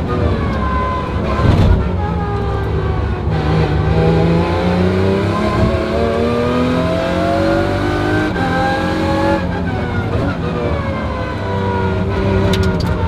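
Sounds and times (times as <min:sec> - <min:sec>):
gear change: 0:00.0 - 0:13.0
race car accelerating hard: 0:00.0 - 0:13.0.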